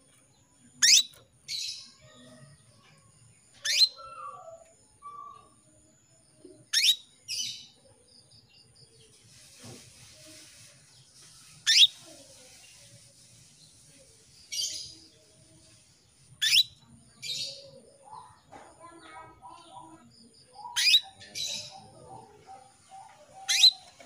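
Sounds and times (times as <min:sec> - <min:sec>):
canary calling: 0:00.8 - 0:02.2, 0:03.6 - 0:05.6, 0:06.7 - 0:07.6, 0:11.7 - 0:12.0, 0:16.4 - 0:18.3, 0:20.6 - 0:24.0.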